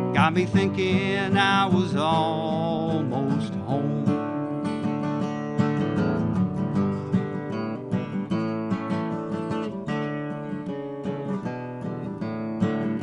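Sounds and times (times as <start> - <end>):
person singing: 0.0 - 4.3
acoustic guitar strummed and picked: 0.0 - 13.0.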